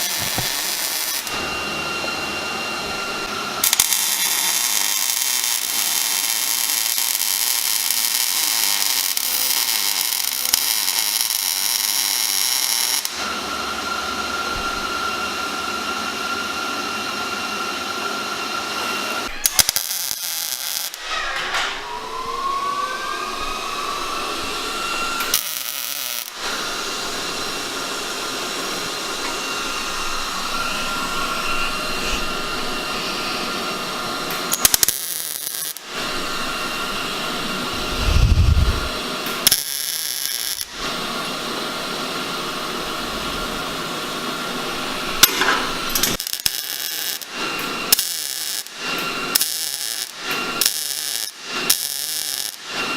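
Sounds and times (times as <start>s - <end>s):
tool whine gliding in pitch: 0.0s - 3.7s, 13.2s - 19.8s, 20.8s - 34.9s, 35.7s - 39.5s
power tools cutting: 0.0s - 52.9s.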